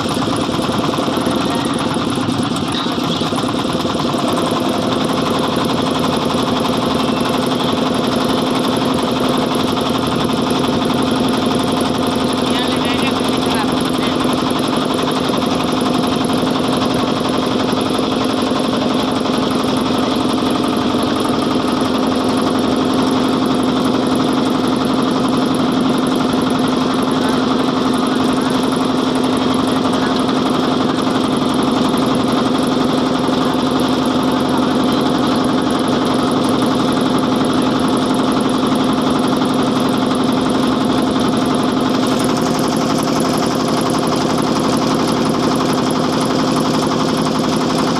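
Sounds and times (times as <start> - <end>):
motorboat engine running: 0.0 - 47.9.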